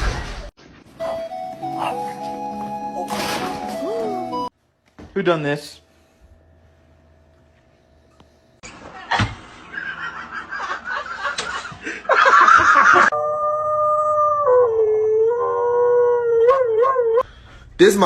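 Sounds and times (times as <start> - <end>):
dog howling: 1.0 - 4.4, 13.1 - 17.2.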